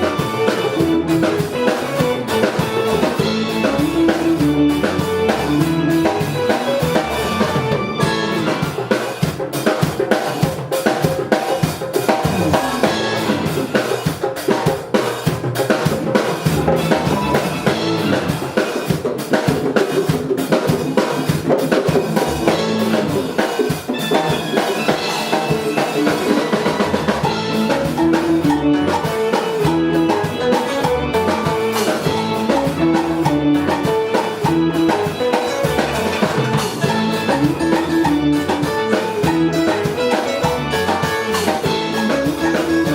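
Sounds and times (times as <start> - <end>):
bass drum and snare: 0.0 - 42.9
music with drum kit: 0.0 - 42.9.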